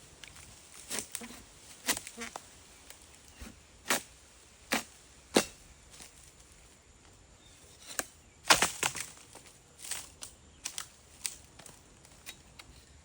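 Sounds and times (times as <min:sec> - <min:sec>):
blade chopping into stalks: 0:00.7 - 0:02.4, 0:04.7 - 0:05.6, 0:07.9 - 0:09.2.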